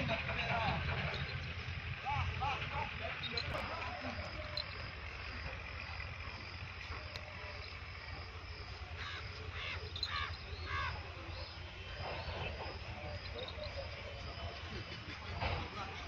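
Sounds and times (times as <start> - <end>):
low hum: 0.0 - 15.5
bird giving harsh calls: 8.9 - 11.6.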